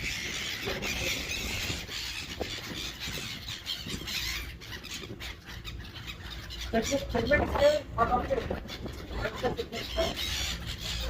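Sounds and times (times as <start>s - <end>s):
seagulls calling and squealing: 0.0s - 11.0s.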